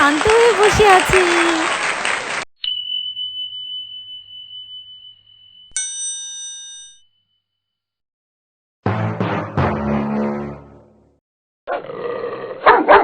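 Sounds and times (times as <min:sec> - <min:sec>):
clear ringing chime: 0:02.6 - 0:07.9
bright bell with overtones: 0:02.6 - 0:08.0.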